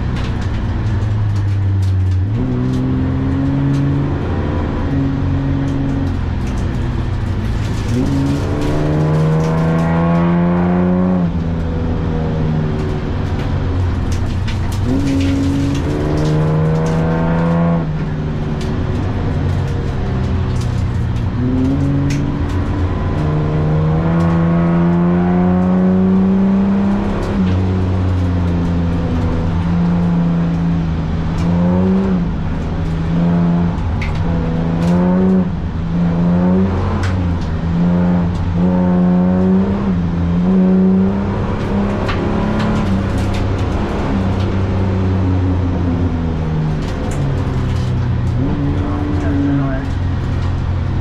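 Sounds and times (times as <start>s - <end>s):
car engine revving hard: 7.6s - 12.9s, 14.6s - 18.1s, 19.7s - 50.2s.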